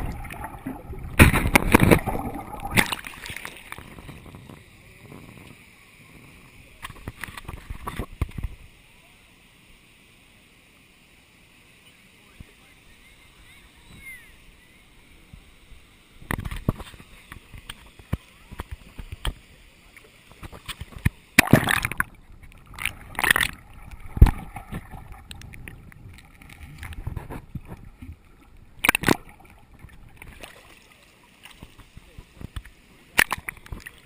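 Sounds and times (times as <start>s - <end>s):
water splashing and sloshing: 0.0s - 4.7s, 16.2s - 34.0s.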